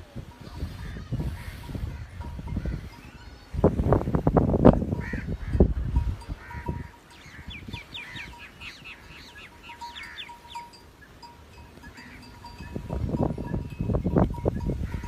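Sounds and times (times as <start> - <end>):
bird chirping: 7.1 - 10.8.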